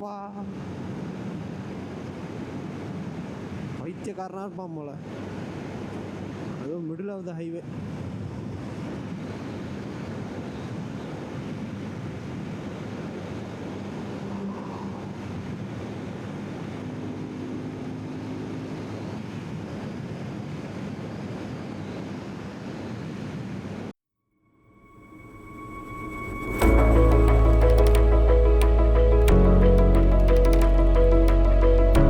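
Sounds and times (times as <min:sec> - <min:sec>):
wind rush on microphone: 0:07.6 - 0:23.9.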